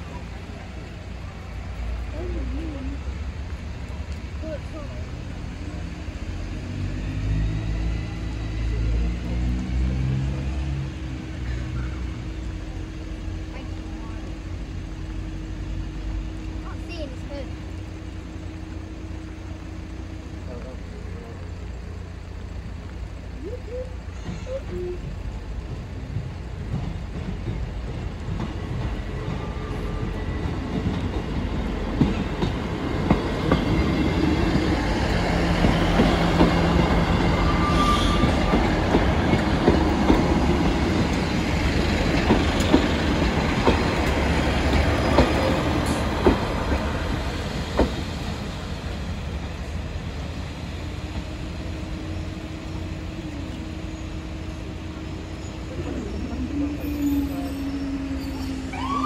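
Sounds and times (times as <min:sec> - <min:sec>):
train rumbling past: 0:00.0 - 0:59.0
wheels clicking over rail joints: 0:16.1 - 0:59.0.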